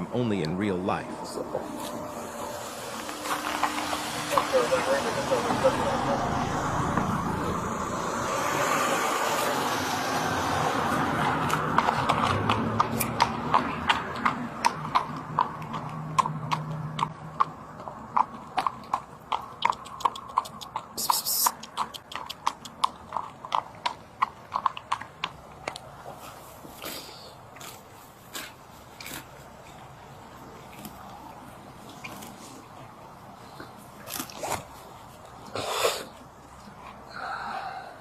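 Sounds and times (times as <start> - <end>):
horse hooves clip-clopping: 1.5 - 6.0, 10.5 - 26.8.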